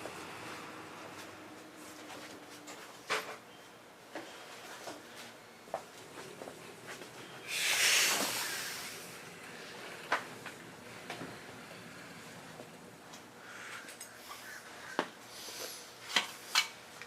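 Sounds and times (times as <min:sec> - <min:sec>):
loud hiss: 0:07.4 - 0:10.0.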